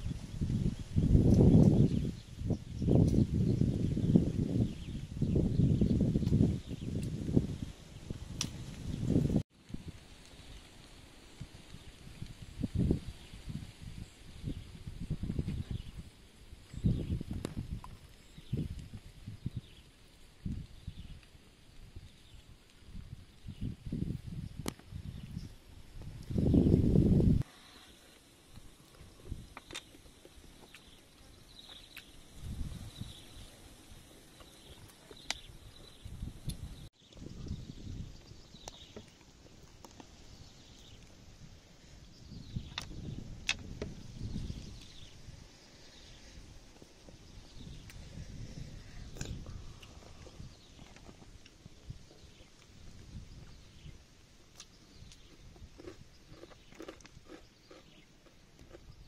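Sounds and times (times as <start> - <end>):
faint chewing: 27.4 - 32.2, 48.9 - 52.8, 54.5 - 59.0
chewing and lip-smacking: 54.5 - 59.0.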